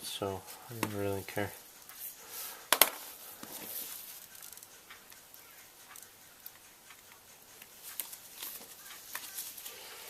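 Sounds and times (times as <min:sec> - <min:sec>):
faint clicks and taps: 0:02.7 - 0:09.7.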